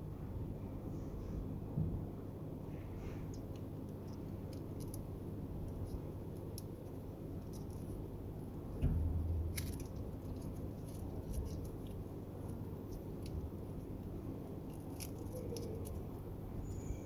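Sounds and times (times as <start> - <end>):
steady low hum: 0.0 - 17.0
heavier knock: 8.8 - 10.2
tools clicking and scraping plastic: 9.5 - 16.1.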